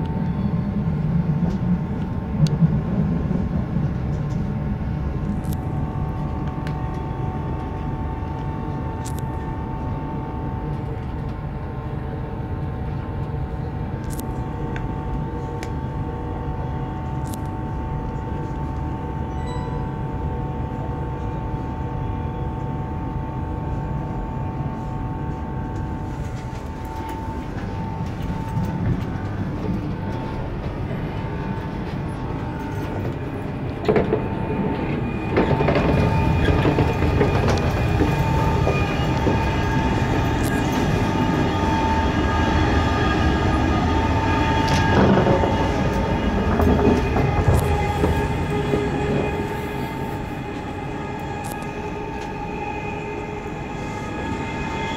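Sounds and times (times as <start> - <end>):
train rumble with whine: 0.0 - 54.9
wheels clacking over rails: 32.0 - 41.3.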